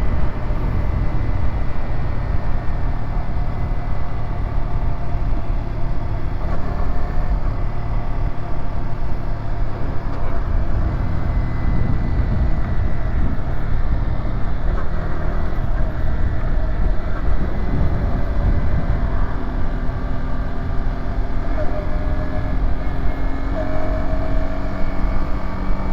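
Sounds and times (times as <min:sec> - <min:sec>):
wind noise on microphone: 0:00.0 - 0:04.3, 0:10.1 - 0:23.2
motorcycle engine running: 0:08.0 - 0:25.9.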